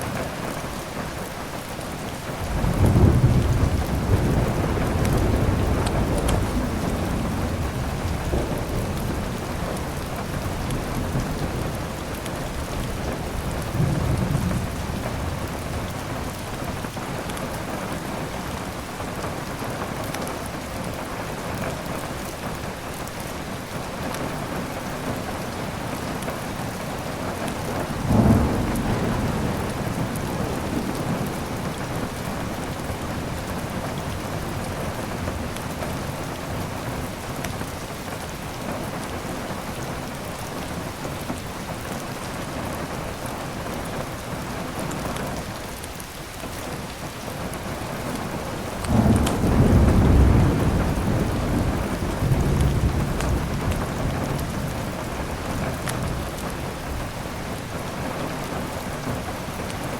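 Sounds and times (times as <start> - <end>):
heavy rain: 0.0 - 59.9
thunder rumbling: 2.4 - 18.6, 27.0 - 38.2, 48.2 - 59.8.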